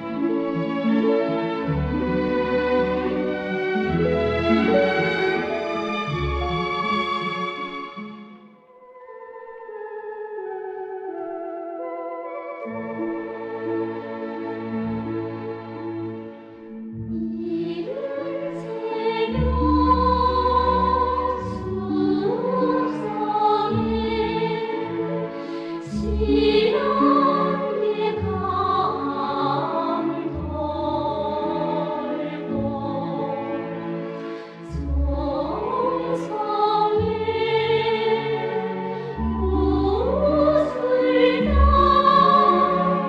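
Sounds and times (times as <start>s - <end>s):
orchestra playing: 0.0s - 9.6s, 11.3s - 24.8s, 25.4s - 43.0s
choir singing with vibrato: 17.1s - 43.0s.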